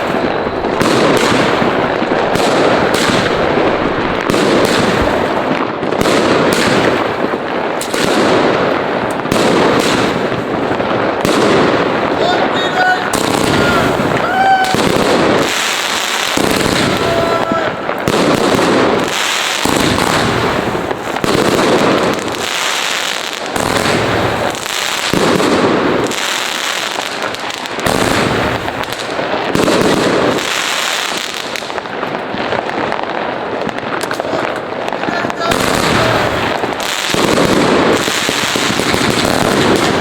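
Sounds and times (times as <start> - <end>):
firework whistles: 0.0 - 5.4, 12.6 - 18.0
fireworks crackling and banging: 0.0 - 40.0.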